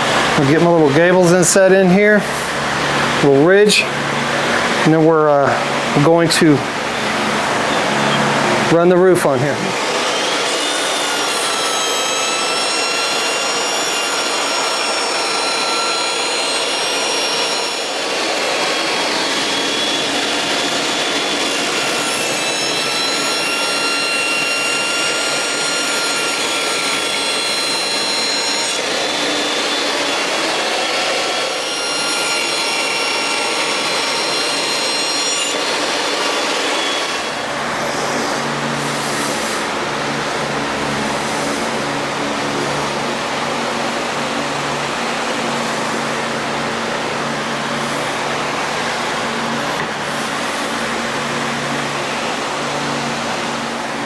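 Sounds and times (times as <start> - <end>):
power saw cutting wood: 0.0 - 54.0.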